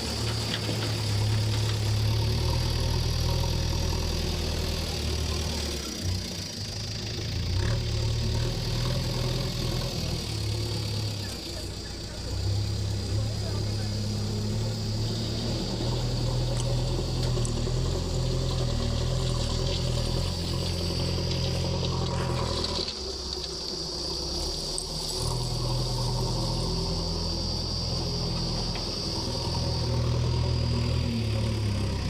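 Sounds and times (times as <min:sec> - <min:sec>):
diesel engine running: 0:00.0 - 0:32.0
high-pitched whine: 0:00.0 - 0:32.0.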